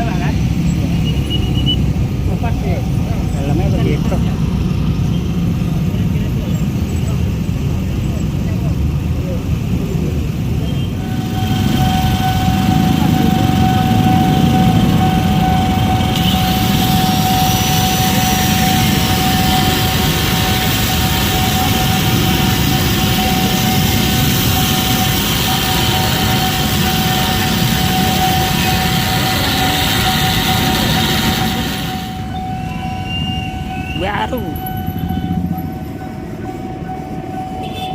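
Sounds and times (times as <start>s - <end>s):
continuous high whine: 0.0s - 37.9s
vehicle noise: 0.0s - 37.9s
hissing rush: 8.9s - 37.1s.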